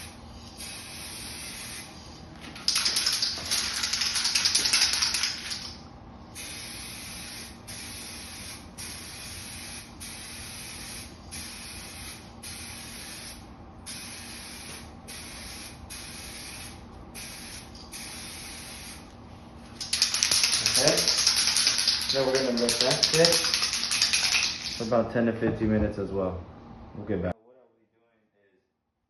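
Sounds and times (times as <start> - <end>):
aerosol can spraying: 2.6 - 5.8, 6.4 - 19.1, 19.8 - 24.9.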